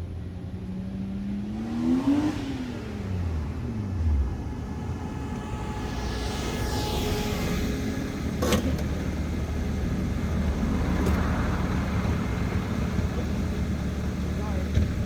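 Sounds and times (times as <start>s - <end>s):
car engine rumble: 0.0s - 15.0s
high hiss: 4.5s - 8.4s.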